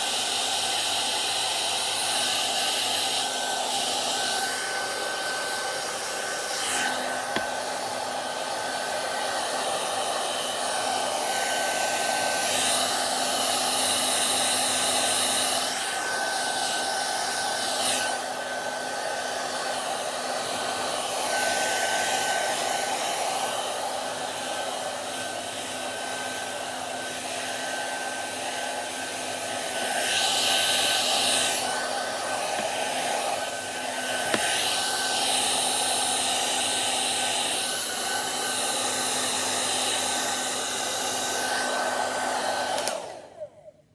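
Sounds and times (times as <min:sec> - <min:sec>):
hair dryer blowing: 0:00.0 - 0:43.9.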